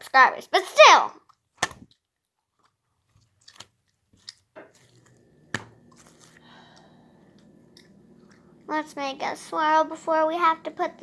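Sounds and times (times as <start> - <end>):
slime squished by hand: 1.4 - 2.0.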